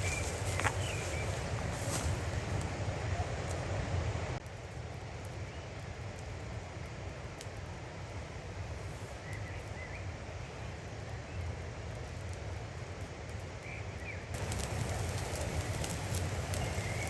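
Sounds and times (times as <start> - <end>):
bird chirps: 0.0 - 1.5
wind rumble on microphone: 0.0 - 4.4, 14.4 - 17.0.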